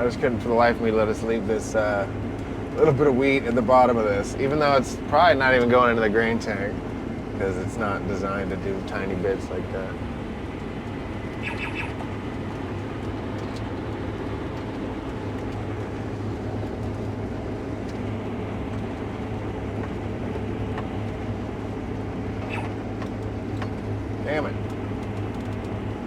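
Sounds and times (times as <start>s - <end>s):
combine harvester engine hum: 0.0s - 26.0s
short high chirp: 11.4s - 12.0s.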